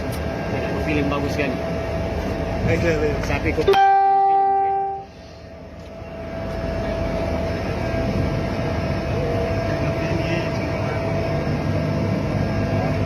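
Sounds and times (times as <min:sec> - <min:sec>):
airplane engine drone: 0:00.0 - 0:13.0.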